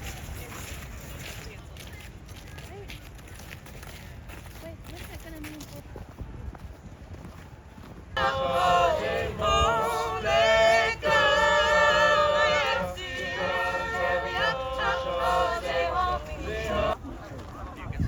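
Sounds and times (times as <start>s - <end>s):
choir singing in harmony: 8.2s - 17.0s.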